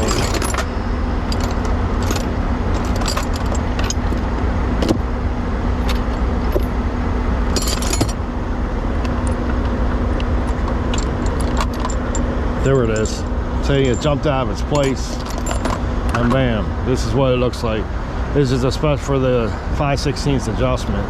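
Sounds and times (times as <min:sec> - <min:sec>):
metal tools clinking: 0:00.0 - 0:05.0, 0:07.5 - 0:08.2, 0:09.0 - 0:16.5
diesel engine idling: 0:00.0 - 0:21.0.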